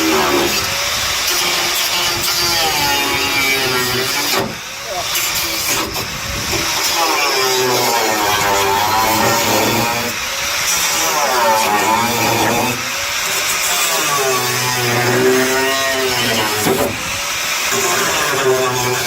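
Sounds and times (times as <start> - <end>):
hiss: 0.0 - 19.0
power tool cutting sheet steel: 0.0 - 19.0.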